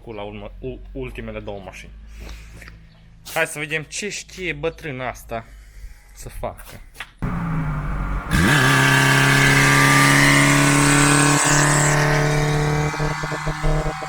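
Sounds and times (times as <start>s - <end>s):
car engine revving: 7.2s - 14.0s.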